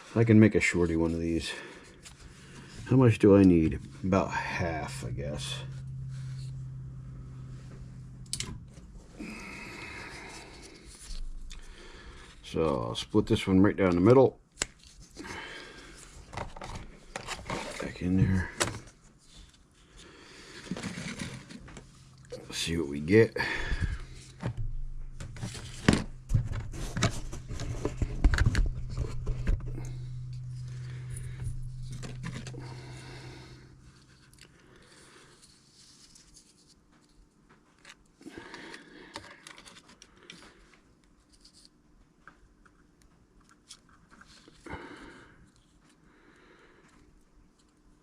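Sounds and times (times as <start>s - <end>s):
steady low hum: 0.0s - 36.2s
hands handling eyeglasses: 23.7s - 33.3s.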